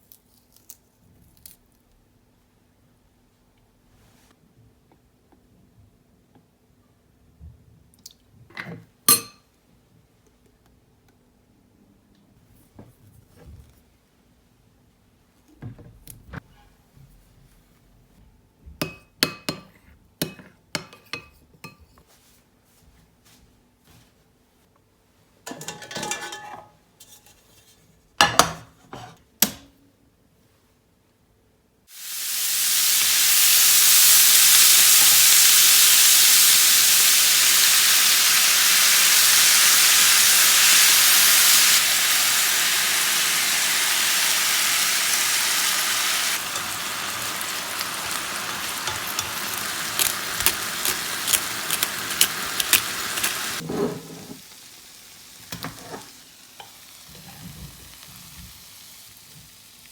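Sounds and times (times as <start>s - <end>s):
kitchenware clinking: 8.6s - 9.5s, 25.5s - 26.8s, 45.8s - 54.4s
food sizzling in hot oil: 31.9s - 53.6s, 54.3s - 59.9s
spitting crackles of frying: 31.9s - 53.7s, 54.3s - 59.9s.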